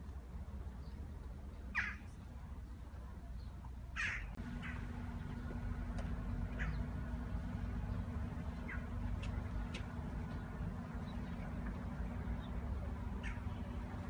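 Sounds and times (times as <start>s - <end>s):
low outdoor rumble: 0.0s - 14.0s
steady low hum: 0.0s - 14.0s
bird calling sharply: 1.7s - 2.1s, 4.0s - 4.9s, 6.5s - 6.9s, 13.2s - 13.8s.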